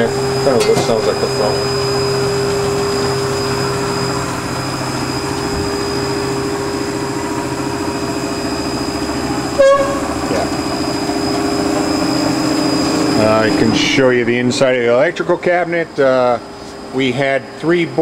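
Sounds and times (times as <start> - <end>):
machine humming with high whine: 0.0 - 18.0
metal cover squeaking: 0.4 - 1.9, 9.6 - 12.2.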